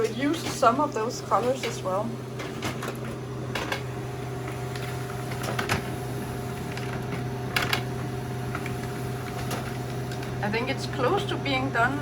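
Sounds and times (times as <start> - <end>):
laser printer humming: 0.0 - 12.0
paper feed clicks: 4.6 - 10.5.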